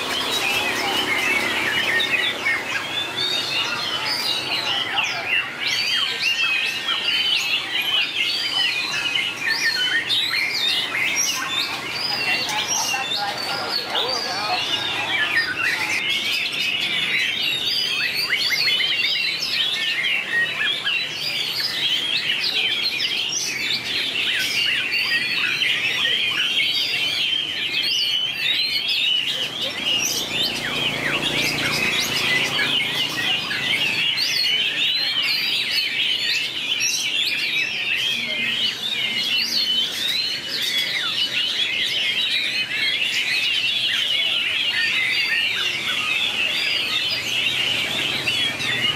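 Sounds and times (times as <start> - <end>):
bird singing rapid whistles and trills: 0.0 - 48.9.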